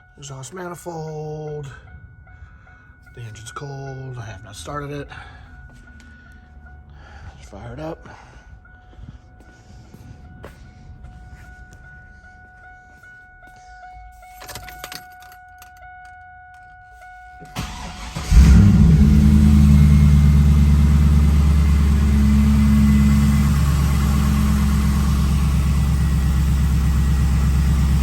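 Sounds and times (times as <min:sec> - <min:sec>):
car engine idling: 0:17.5 - 0:28.0.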